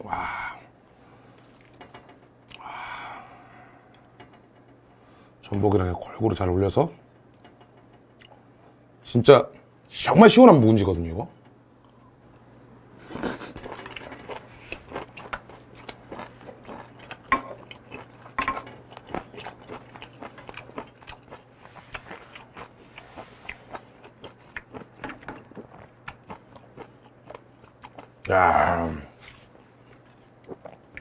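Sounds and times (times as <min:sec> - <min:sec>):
wet crunchy chewing: 0:13.2 - 0:28.3.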